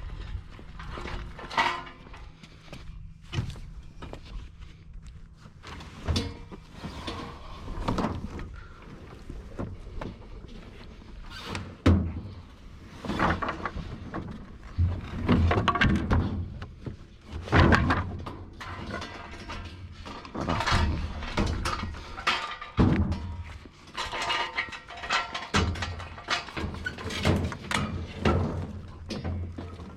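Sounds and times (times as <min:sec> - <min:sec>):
rustling and scraping: 0:00.0 - 0:29.9
thuds and knocks of junk: 0:13.1 - 0:29.9.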